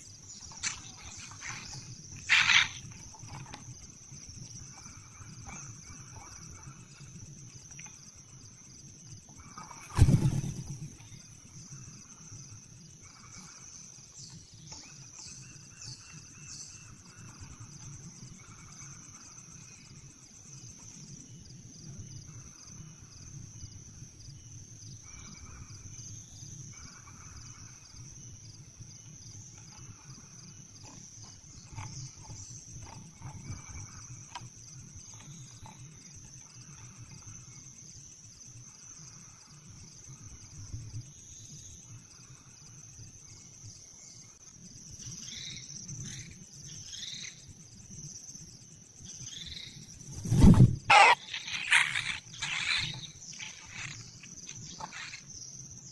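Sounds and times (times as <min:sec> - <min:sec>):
high insect hum: 0:00.0 - 0:55.9
chicks giving raspy begging calls: 0:50.9 - 0:52.8.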